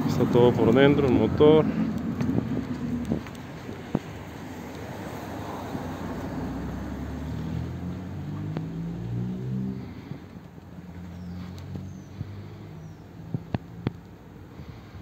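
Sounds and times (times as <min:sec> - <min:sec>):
car engine idling: 0:00.0 - 0:08.7.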